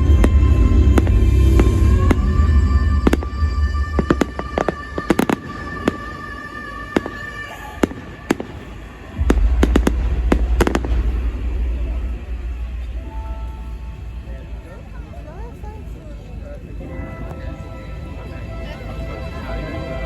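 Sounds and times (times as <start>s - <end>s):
deep low rumble: 0.0s - 5.8s, 8.9s - 17.1s
fireworks bangs and crackles: 0.0s - 14.1s.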